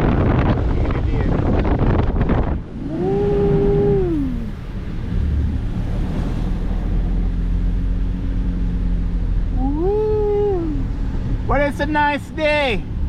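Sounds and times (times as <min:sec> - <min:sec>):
car road and engine rumble: 0:00.0 - 0:13.0
person humming a long note: 0:02.8 - 0:04.5.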